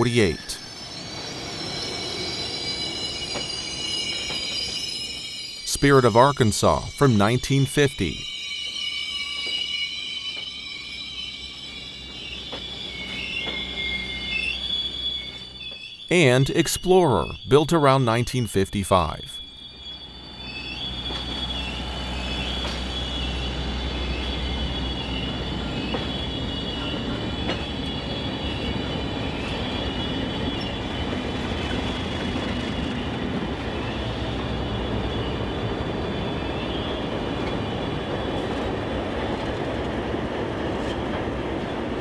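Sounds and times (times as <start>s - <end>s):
train wheels squealing on rail: 0.0s - 17.5s, 19.1s - 42.0s
train cars rolling past: 19.7s - 42.0s.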